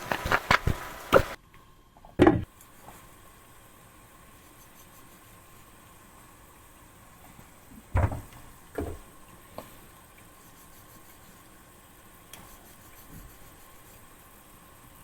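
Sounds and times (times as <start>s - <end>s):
faint room hum: 0.0s - 15.0s
dull thuds: 7.9s - 9.0s.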